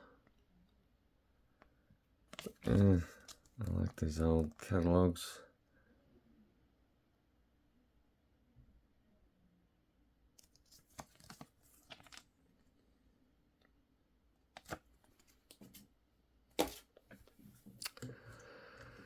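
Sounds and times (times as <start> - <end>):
paper pages rustling: 2.3 - 4.7, 10.4 - 12.3, 14.6 - 15.8, 16.6 - 18.0.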